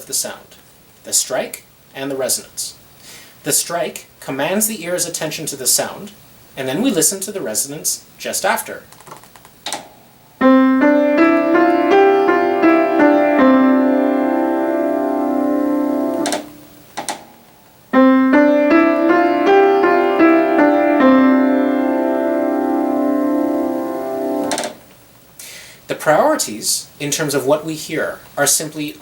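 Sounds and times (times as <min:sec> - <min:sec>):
piano melody: 0:10.4 - 0:16.9, 0:17.8 - 0:24.8.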